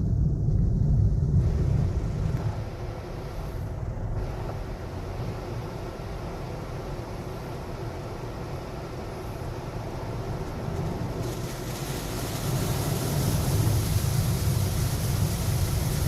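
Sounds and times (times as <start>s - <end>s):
car wash machinery rumbling: 0.0s - 16.0s
hissing water rush: 11.2s - 16.0s.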